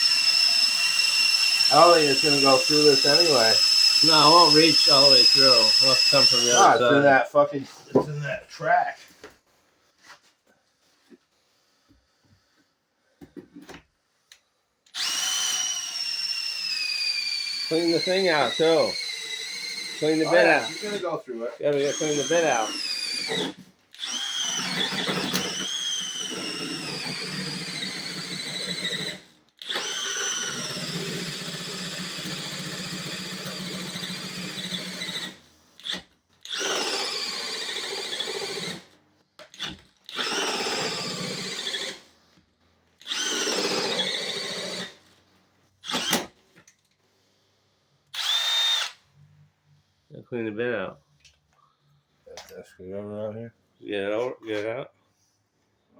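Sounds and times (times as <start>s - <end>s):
power drill with hole saw: 0.0s - 7.2s, 14.9s - 42.4s, 43.0s - 45.2s, 45.8s - 46.5s, 48.1s - 49.1s.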